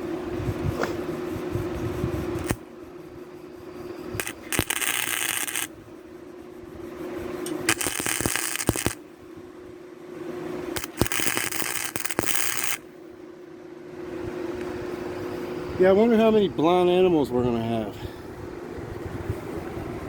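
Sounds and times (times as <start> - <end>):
steady hum: 0.0 - 20.0
welder arc crackling: 2.2 - 2.7, 4.0 - 5.7, 7.4 - 9.0, 10.7 - 12.9.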